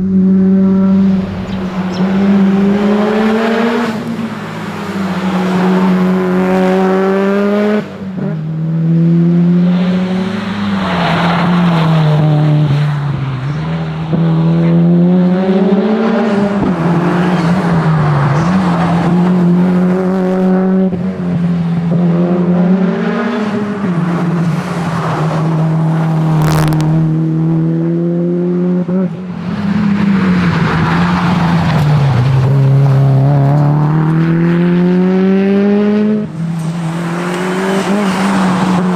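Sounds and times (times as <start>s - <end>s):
car engine revving: 0.0s - 38.9s
tyre squeal: 0.9s - 7.2s, 9.7s - 13.7s
sharp crack: 23.8s - 27.6s.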